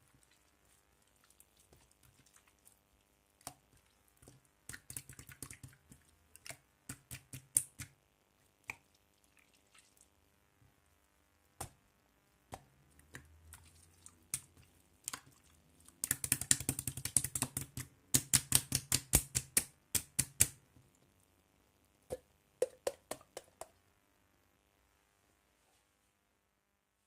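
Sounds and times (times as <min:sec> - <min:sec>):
slime clicking and popping: 0:16.0 - 0:20.6.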